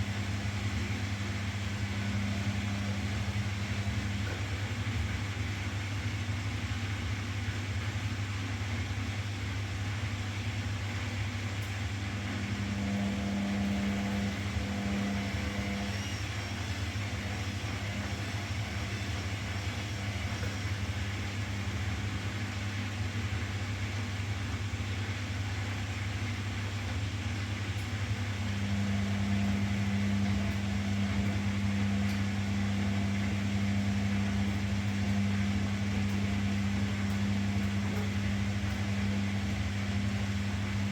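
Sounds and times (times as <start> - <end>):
washing machine motor hum: 0.0 - 40.9
higher machine drone: 12.2 - 22.1.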